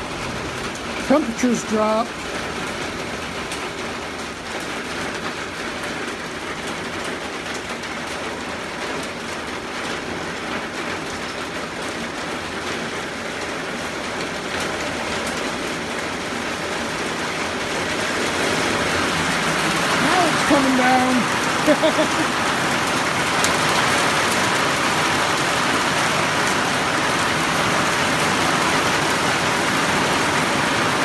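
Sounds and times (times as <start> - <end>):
steady rain on porch screen: 0.0 - 31.0.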